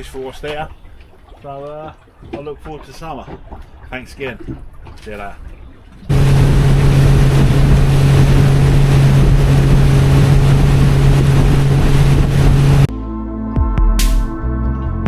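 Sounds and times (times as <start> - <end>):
motorboat engine drone: 6.1 - 12.9
water rushing: 6.1 - 12.9
wind noise on microphone: 6.1 - 12.9.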